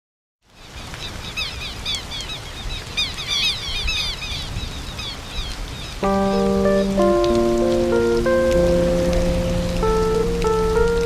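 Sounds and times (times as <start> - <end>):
small birds chirping: 0.5 - 8.5
background hiss: 5.3 - 11.0
music with long held notes: 6.0 - 11.0.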